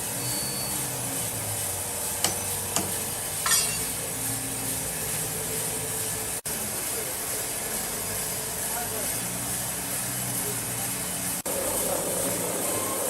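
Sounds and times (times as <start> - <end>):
sawmill machinery hum: 0.0 - 13.0
ringing metallic clink: 2.2 - 4.0.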